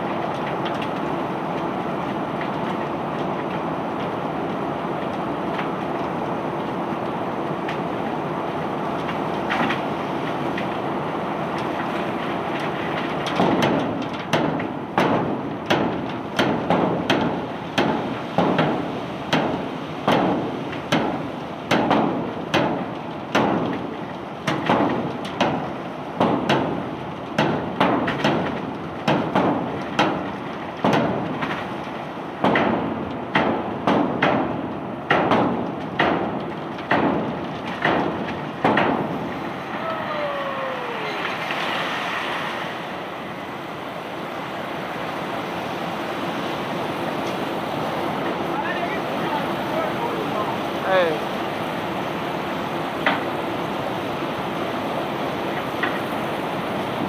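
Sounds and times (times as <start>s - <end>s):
machinery rumble: 34.6s - 57.0s.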